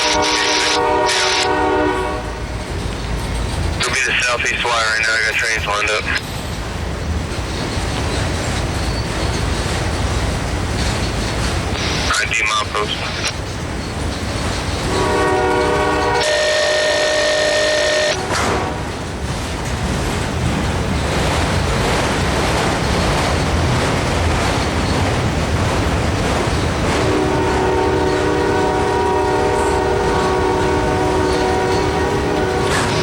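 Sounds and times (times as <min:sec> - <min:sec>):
locomotive air horn: 0:00.0 - 0:02.4, 0:14.9 - 0:18.9, 0:27.1 - 0:33.0
train rumbling and rattling: 0:00.0 - 0:33.0.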